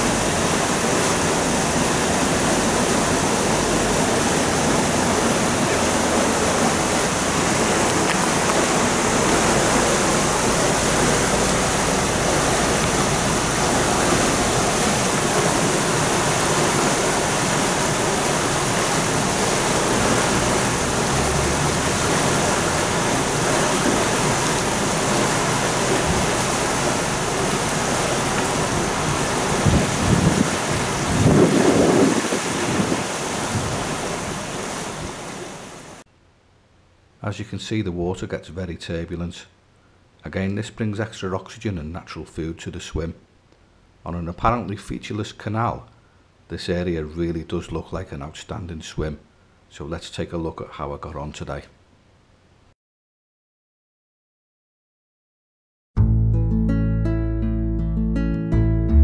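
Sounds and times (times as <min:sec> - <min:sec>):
water gushing through sluice gates: 0:00.0 - 0:36.0.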